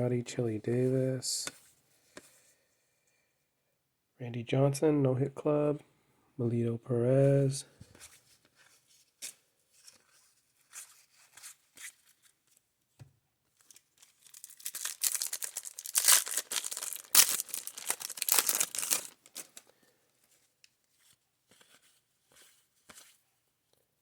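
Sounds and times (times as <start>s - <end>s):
thin wrapper crackling and tearing: 13.6s - 19.7s.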